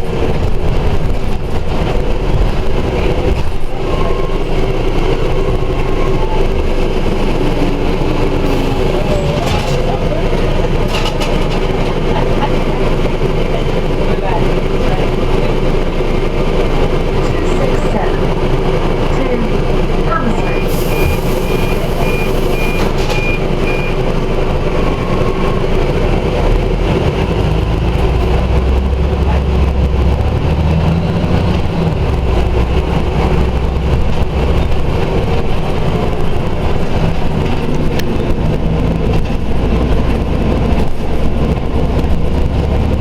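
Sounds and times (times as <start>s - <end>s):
bus engine rumble: 0.0s - 43.0s
high beeps: 20.5s - 24.0s.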